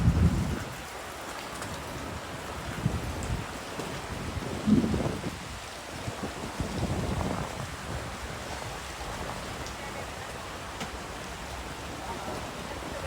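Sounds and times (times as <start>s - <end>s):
snowstorm wind rushing: 0.0s - 0.8s
wind gusts buffeting microphone: 0.0s - 1.0s, 1.9s - 13.0s.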